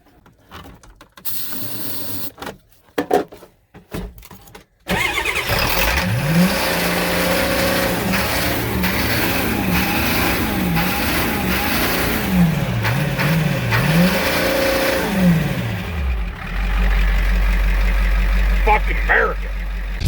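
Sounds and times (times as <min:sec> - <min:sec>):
vehicle engine revving: 0:05.0 - 0:20.0.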